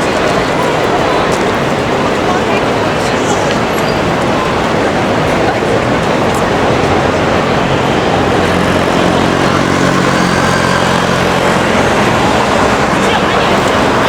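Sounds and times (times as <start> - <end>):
city street din: 0.0 - 14.0
vehicle engine running: 3.6 - 14.0.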